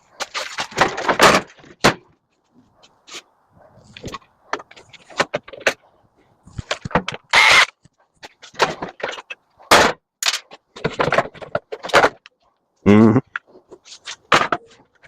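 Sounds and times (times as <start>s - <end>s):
metal clanks and knocks: 8.2s - 12.3s.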